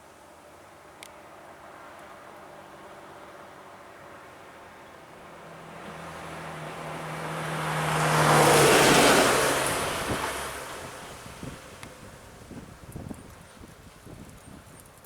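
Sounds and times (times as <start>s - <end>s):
motor vehicle driving past: 5.5s - 11.8s.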